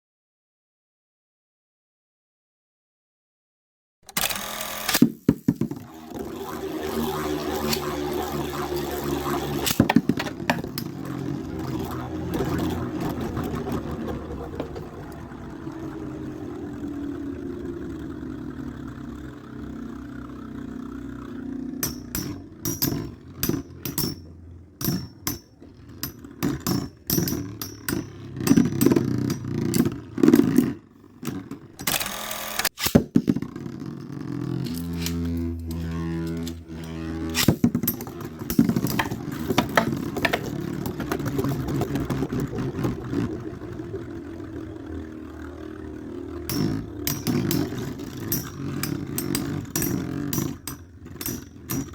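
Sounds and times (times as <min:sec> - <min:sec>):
tops clacking together: 0:04.1 - 0:05.9, 0:07.4 - 0:15.2, 0:21.8 - 0:34.0, 0:34.6 - 0:43.1, 0:46.5 - 0:51.9
spinning tops whirring: 0:04.1 - 0:51.9.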